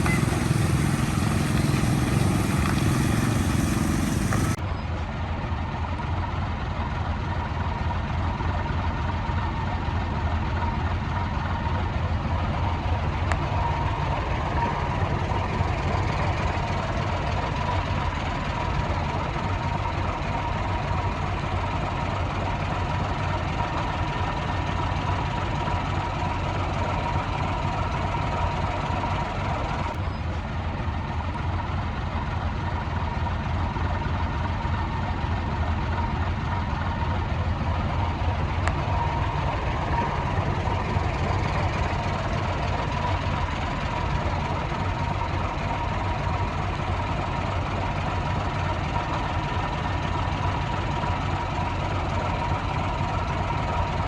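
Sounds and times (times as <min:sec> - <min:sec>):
heavy diesel machinery engine: 0:00.0 - 0:54.0.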